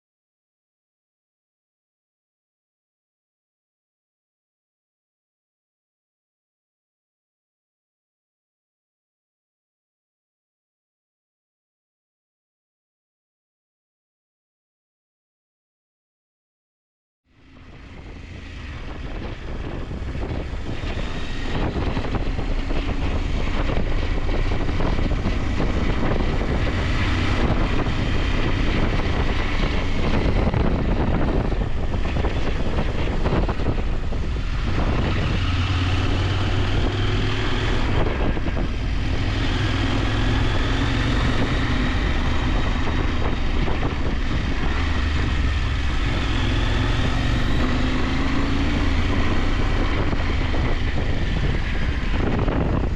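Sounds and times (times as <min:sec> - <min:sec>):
motorcycle engine revving: 0:17.4 - 0:52.9
wind noise on microphone: 0:17.4 - 0:52.9.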